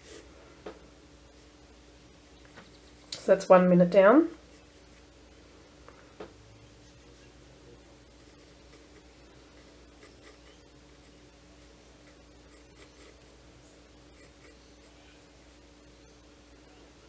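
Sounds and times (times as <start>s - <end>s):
pencil scratching on paper: 0.0s - 0.3s, 8.1s - 13.4s, 14.1s - 15.0s
low steady hum: 0.0s - 17.0s.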